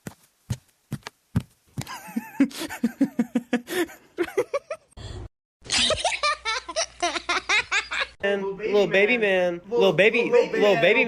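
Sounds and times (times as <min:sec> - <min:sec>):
person laughing: 0:01.8 - 0:04.9, 0:05.6 - 0:08.2.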